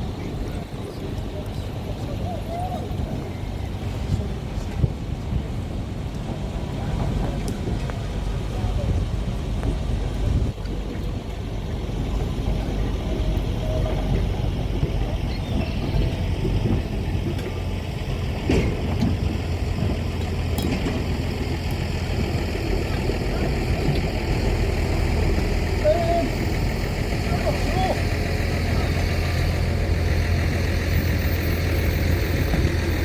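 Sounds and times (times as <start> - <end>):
heavy vehicle humming: 0.0 - 33.0.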